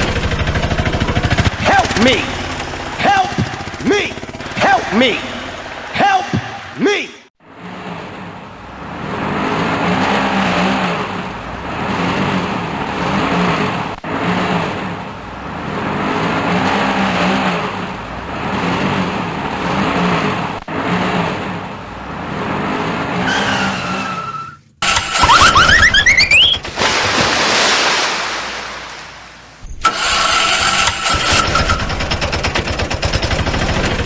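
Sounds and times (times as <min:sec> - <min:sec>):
car engine revving: 0:00.0 - 0:06.0, 0:07.4 - 0:26.2.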